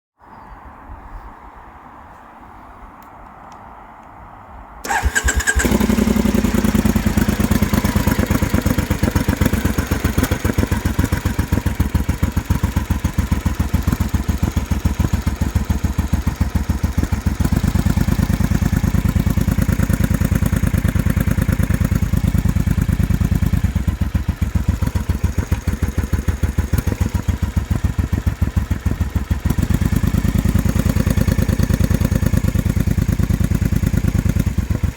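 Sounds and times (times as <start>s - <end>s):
engine starting: 4.8s - 6.4s.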